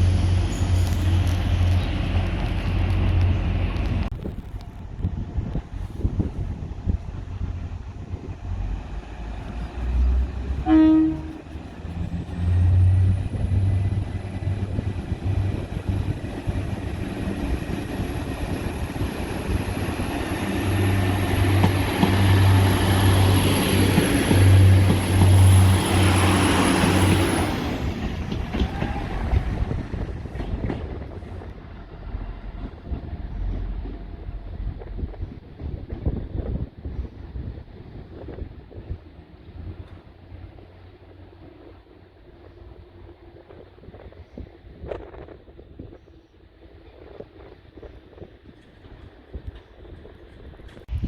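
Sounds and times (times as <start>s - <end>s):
train engine throb: 0.0s - 44.0s
train horn toot: 10.6s - 11.6s.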